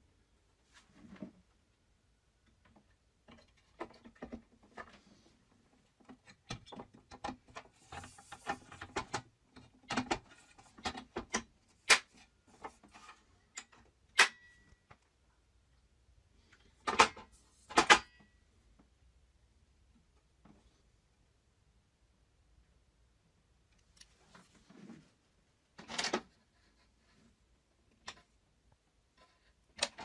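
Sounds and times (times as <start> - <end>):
clicks and knocks of hard parts: 16.8 - 18.3.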